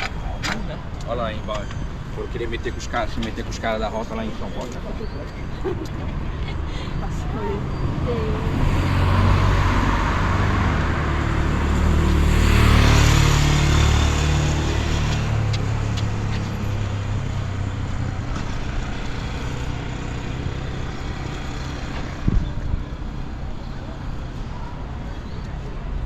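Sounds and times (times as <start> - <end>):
motor engine passing by: 7.1 - 22.8.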